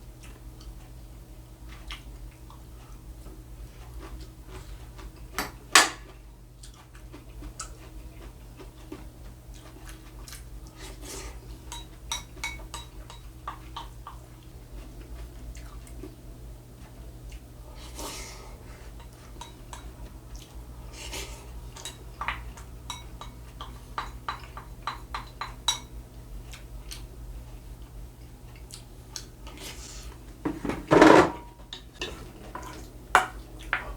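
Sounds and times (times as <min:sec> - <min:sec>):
spoon clinking against a bowl: 0:11.7 - 0:13.9, 0:21.8 - 0:25.9.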